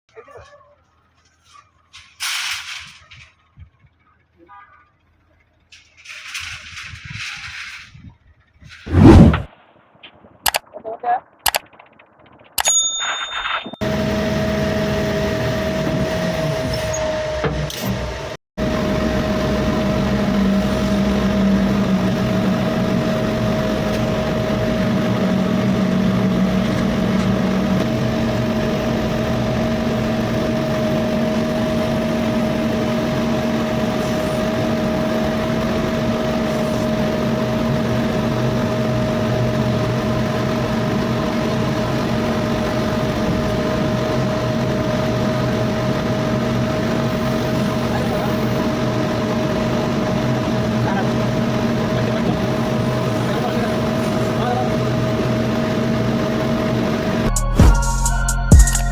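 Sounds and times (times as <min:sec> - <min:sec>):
constant whine: 0:00.1 - 0:58.9
heavy machine diesel engine running: 0:00.7 - 0:09.5, 0:13.8 - 0:58.9.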